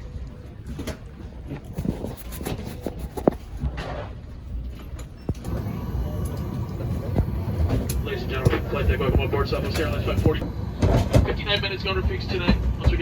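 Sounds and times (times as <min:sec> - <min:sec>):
airliner cabin rumble: 0:03.6 - 0:13.0.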